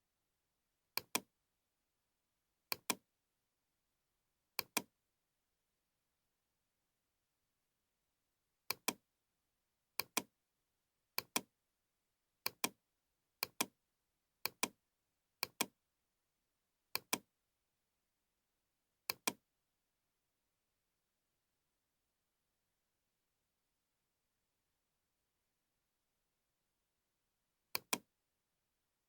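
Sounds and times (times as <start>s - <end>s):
computer mouse double-clicking: 19.1s - 19.4s, 27.8s - 28.0s.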